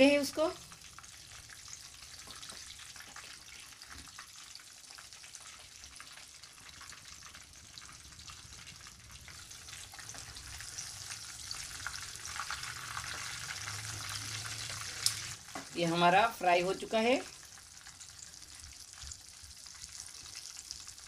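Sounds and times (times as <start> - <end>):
cutlets sizzling in hot oil: 0.0 - 21.0.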